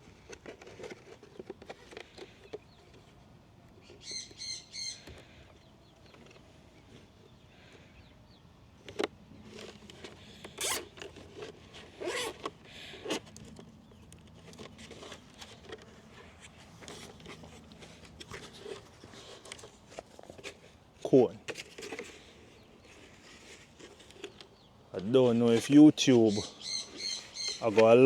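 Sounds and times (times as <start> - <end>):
plastic rubbing and handling: 0.0 - 4.0, 8.8 - 28.0
cable ties zipping tight: 10.4 - 11.2, 12.0 - 13.3.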